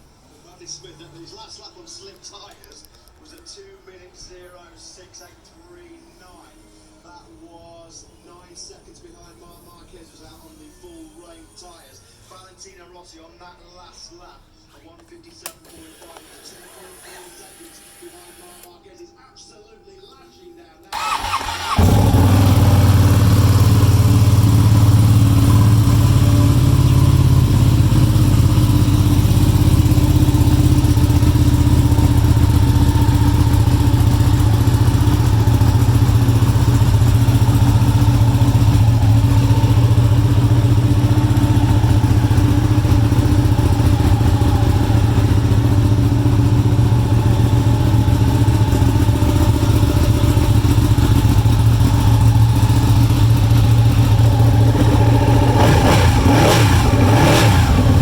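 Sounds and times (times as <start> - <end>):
motorcycle starting and idling: 20.9 - 58.0.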